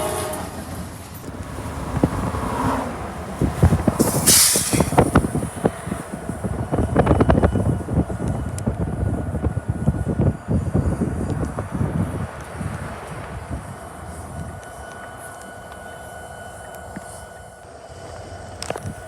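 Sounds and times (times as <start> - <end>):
train wheels clattering over joints: 0.3 - 10.3
brief hiss: 4.0 - 5.2.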